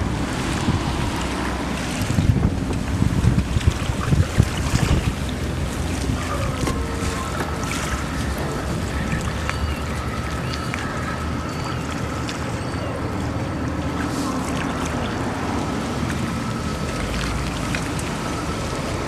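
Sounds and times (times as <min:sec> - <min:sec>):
wind noise on microphone: 0:00.0 - 0:10.0
outdoor rumble: 0:00.0 - 0:19.0.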